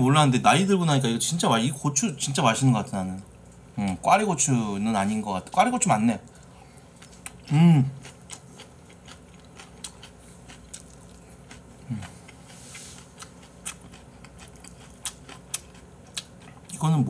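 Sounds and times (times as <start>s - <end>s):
person chewing food: 6.2s - 16.8s.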